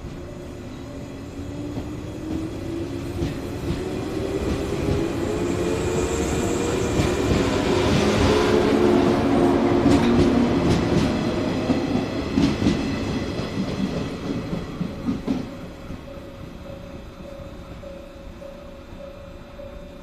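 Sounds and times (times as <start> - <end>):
train wheels clacking on rail joints: 6.8 - 16.3.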